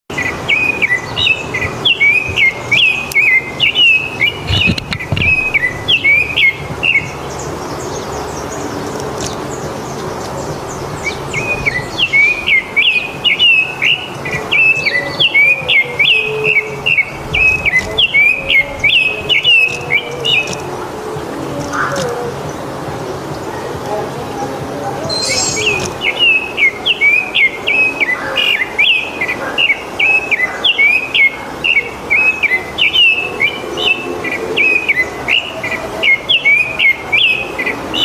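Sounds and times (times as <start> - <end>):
songbird singing fast chirps: 0.1 - 38.0
faint high chirps: 25.1 - 26.4.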